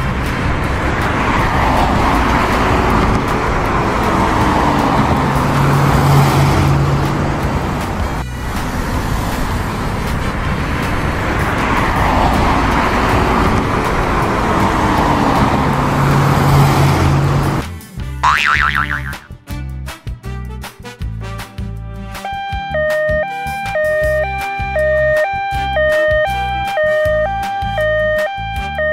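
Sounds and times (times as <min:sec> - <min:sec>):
car engine hum: 0:00.0 - 0:19.2.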